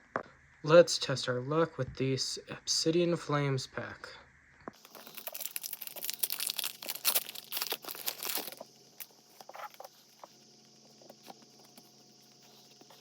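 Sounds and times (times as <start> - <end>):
foil wrapper tearing and crinkling: 4.8 - 10.3.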